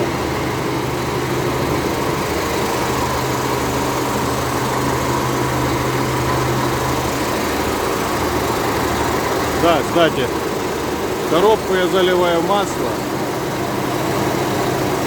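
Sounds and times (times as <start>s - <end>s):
diesel tractor engine running: 0.0s - 15.0s.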